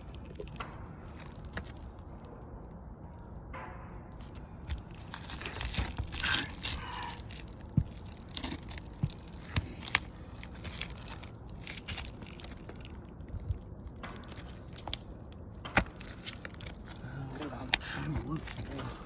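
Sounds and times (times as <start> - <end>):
roof shingles scraping and crinkling: 4.7 - 13.5, 15.8 - 19.0.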